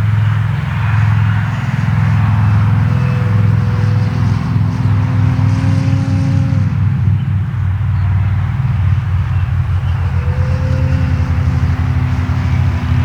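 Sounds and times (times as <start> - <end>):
model plane motor whining: 9.0 - 13.0.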